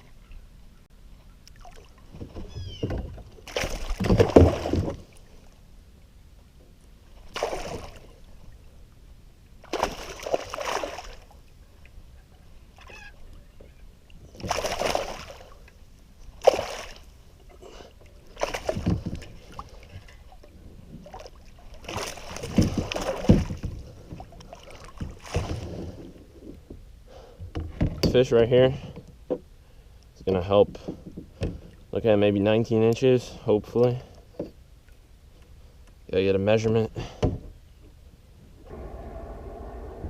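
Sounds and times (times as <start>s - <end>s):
water splashing around kayak: 1.4s - 5.7s, 6.6s - 28.1s.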